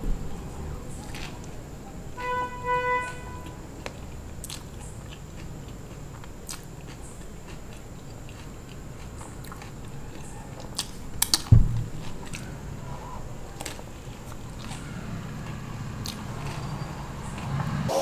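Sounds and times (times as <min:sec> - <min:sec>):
chewing with wet mouth clicks: 0:03.4 - 0:12.5, 0:13.5 - 0:16.7
low thump: 0:11.5 - 0:12.1.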